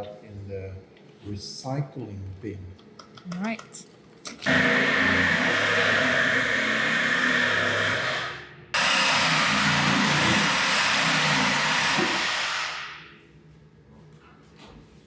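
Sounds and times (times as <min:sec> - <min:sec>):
power tool cutting metal pipe: 0:04.4 - 0:13.0.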